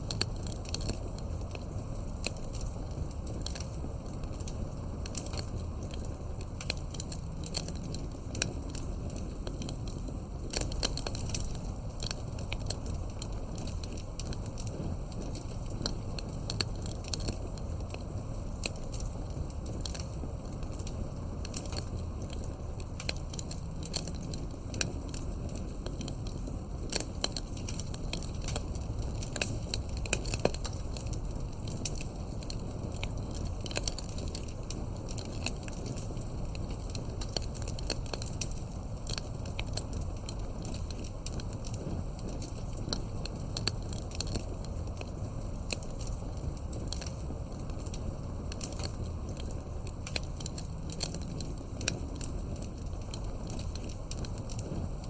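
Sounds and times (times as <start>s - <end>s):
low rush of flames: 0.0s - 55.0s
wood crackling and popping: 0.0s - 55.0s.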